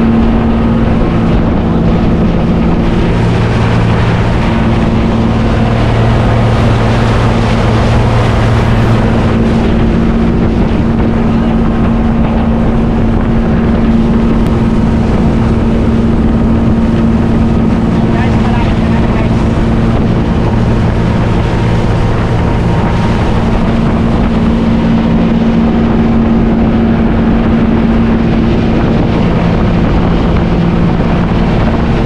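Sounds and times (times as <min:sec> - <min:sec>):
motorboat engine running: 0:00.0 - 0:32.0
wind buffeting microphone: 0:00.0 - 0:32.0.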